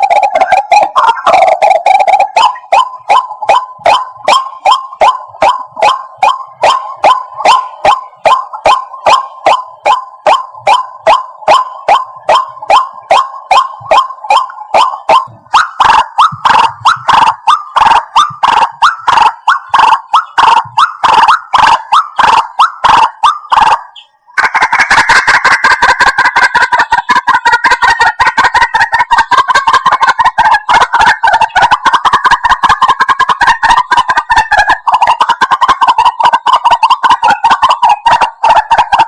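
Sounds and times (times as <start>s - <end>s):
bird calling repeated notes: 0.0s - 39.0s
fast bird chattering: 0.0s - 39.0s.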